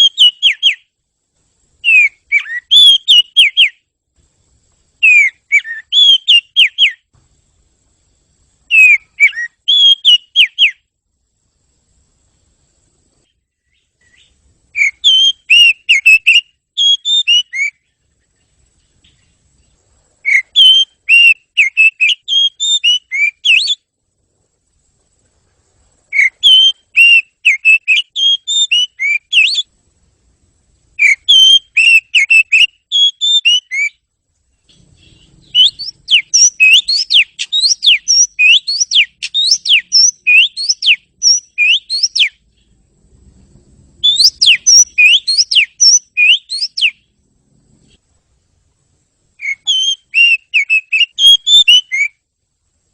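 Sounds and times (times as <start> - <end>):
bird singing whistled phrases: 0.0 - 0.9, 1.8 - 3.8, 5.0 - 7.1, 8.7 - 10.8, 13.6 - 18.0, 20.2 - 23.8, 26.1 - 29.7, 31.0 - 34.0, 34.8 - 42.4, 44.0 - 47.0, 49.4 - 52.2
rising whistled bird notes: 0.0 - 0.9, 1.8 - 3.8, 5.0 - 7.1, 8.7 - 10.9, 13.2 - 23.9, 26.0 - 29.7, 31.0 - 34.1, 34.7 - 42.8, 43.9 - 47.2, 49.4 - 52.2.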